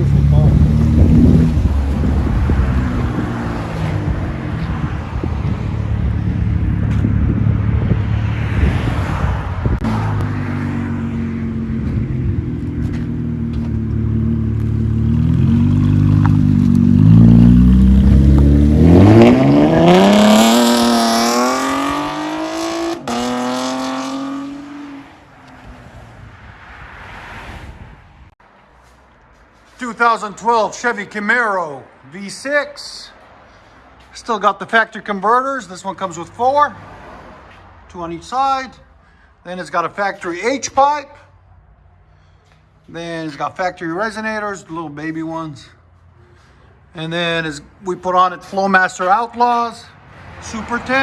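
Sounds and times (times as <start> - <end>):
car engine revving: 0.0 - 25.3.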